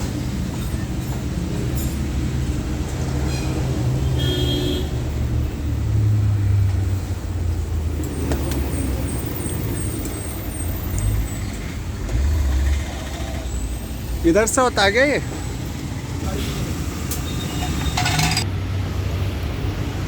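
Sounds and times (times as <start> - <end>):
rumble of motor vehicles: 0.0 - 20.0.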